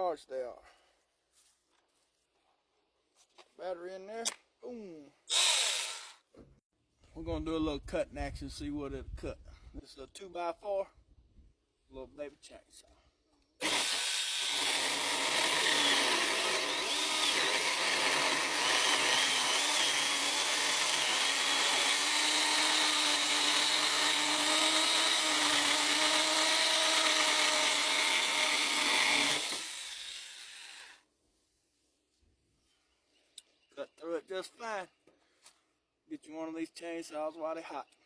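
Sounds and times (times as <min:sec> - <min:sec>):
electric chainsaw cutting wood: 0:05.3 - 0:06.2, 0:13.6 - 0:31.0.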